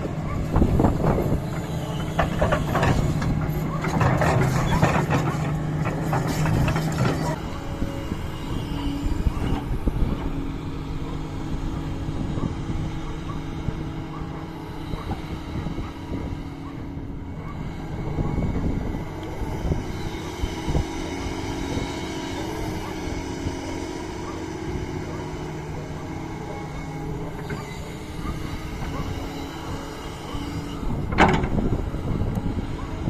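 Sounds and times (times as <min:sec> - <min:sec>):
excavator diesel engine running: 0:00.0 - 0:33.0
knocks and clanks: 0:31.1 - 0:31.6.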